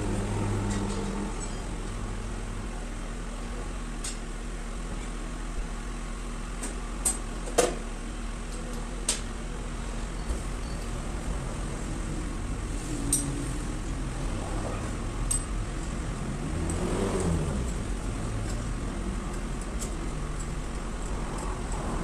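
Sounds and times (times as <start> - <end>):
sharp clicks and clinks: 15.2 - 16.0.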